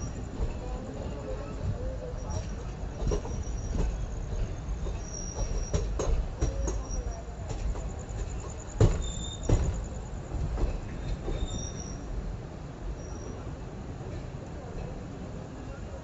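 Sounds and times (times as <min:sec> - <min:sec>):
wheels knocking on rail joints: 0:00.0 - 0:11.8
train rumbling on track: 0:00.0 - 0:16.0
high-pitched wheel squeals: 0:04.9 - 0:06.0, 0:09.0 - 0:09.6, 0:11.3 - 0:12.1.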